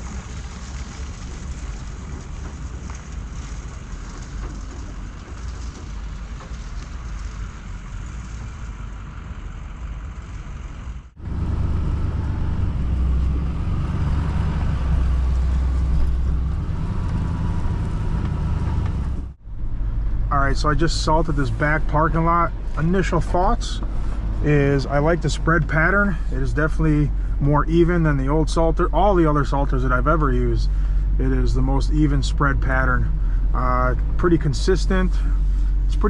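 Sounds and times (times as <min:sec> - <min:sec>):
salt granules hissing on pavement: 0:00.0 - 0:08.5
truck engine rumble: 0:00.0 - 0:36.0.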